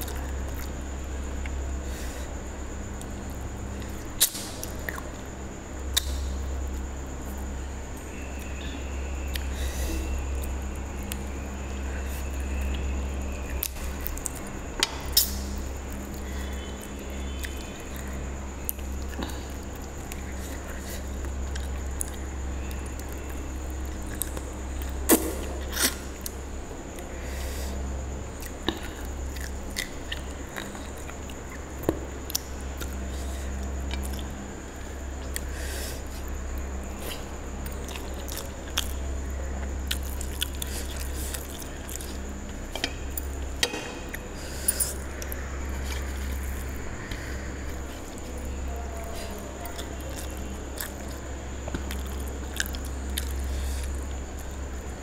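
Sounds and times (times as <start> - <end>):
steady low hum: 0.0 - 55.0
mouth chewing food: 28.4 - 43.5, 44.1 - 54.8.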